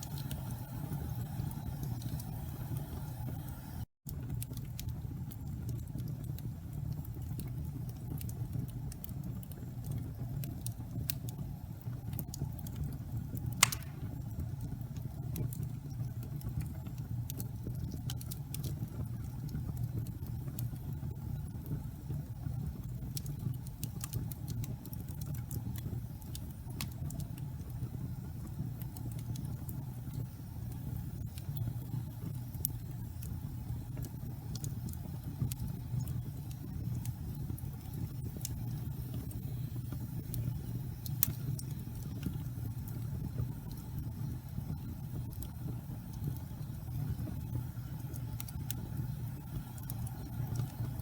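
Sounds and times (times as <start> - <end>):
fire crackles: 0.0 - 51.0
fire flames rumbling: 0.0 - 51.0
sharp pop of fire: 13.6 - 14.4.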